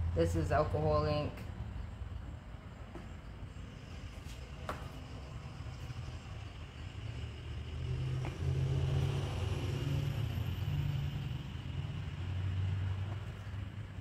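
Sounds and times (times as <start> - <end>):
vehicle engine revving: 5.8 - 13.6.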